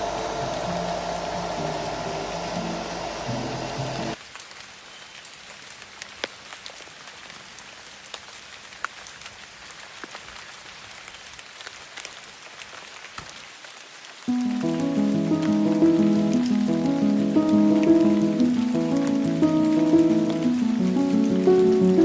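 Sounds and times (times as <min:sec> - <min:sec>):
music: 0:00.0 - 0:04.2, 0:14.3 - 0:22.0
steady rain hiss: 0:00.0 - 0:22.0.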